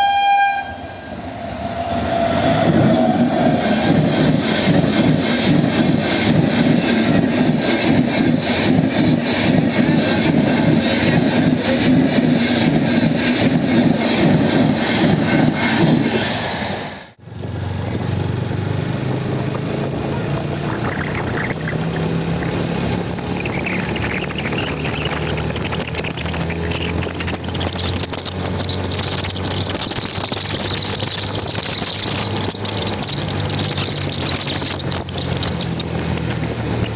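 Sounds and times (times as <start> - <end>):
wind rushing over microphone: 1.2 - 36.9
motorcycle engine running: 17.2 - 36.9.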